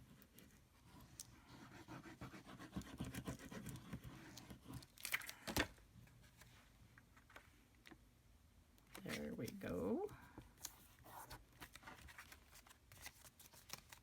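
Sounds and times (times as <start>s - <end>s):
paper rustling by hand: 10.5s - 14.0s.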